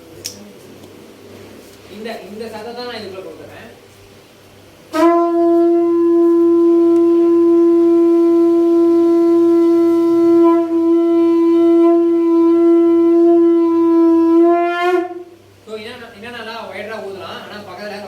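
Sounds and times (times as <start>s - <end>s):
conch shell blown: 4.9s - 15.4s.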